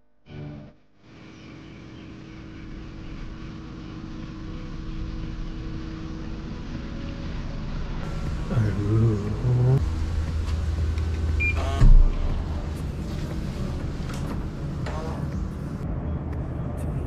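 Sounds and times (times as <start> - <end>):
vehicle engine running: 2.2 - 15.8.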